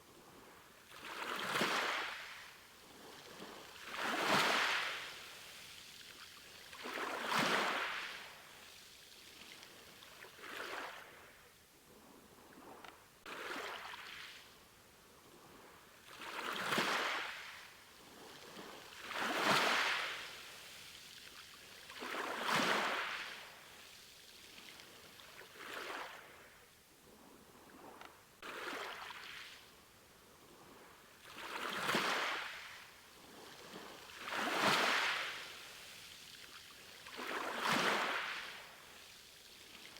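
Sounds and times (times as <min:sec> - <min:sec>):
sea waves breaking on shore: 0:16.1 - 0:20.9, 0:21.8 - 0:24.0, 0:31.3 - 0:36.2, 0:36.8 - 0:39.1.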